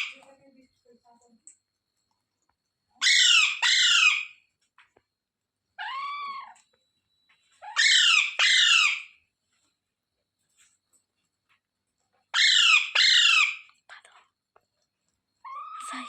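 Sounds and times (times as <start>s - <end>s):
parrot screeching: 3.0s - 4.4s, 5.8s - 6.6s, 7.6s - 9.2s, 12.4s - 13.7s, 15.4s - 15.9s.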